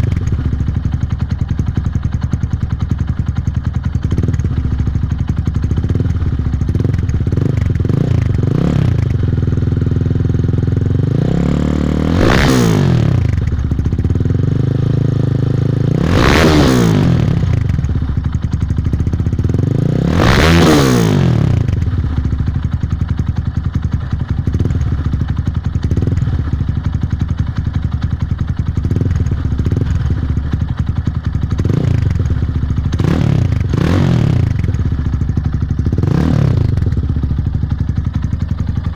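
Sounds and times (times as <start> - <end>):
engine exhaust idling and revving: 0.0 - 38.9.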